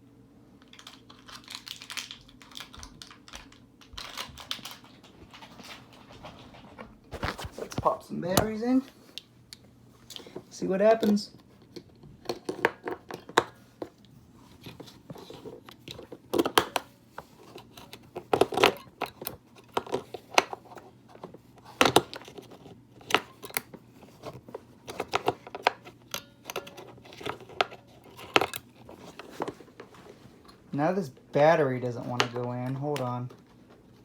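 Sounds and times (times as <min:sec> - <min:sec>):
plastic casing being handled: 0:07.1 - 0:08.6, 0:11.0 - 0:30.7.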